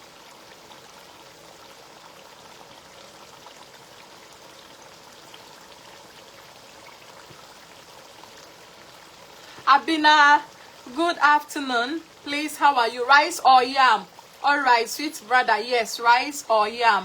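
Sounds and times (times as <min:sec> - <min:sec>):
stew simmering with pops: 0:00.0 - 0:15.6.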